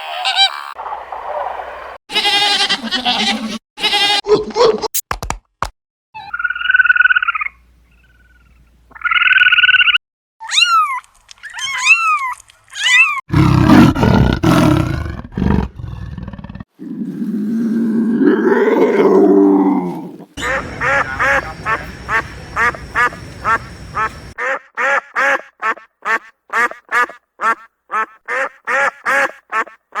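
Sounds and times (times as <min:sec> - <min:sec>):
harsh animal calls: 0:13.3 - 0:24.6
arched chirps: 0:20.4 - 0:24.4
quickly repeated short calls: 0:20.4 - 0:24.5.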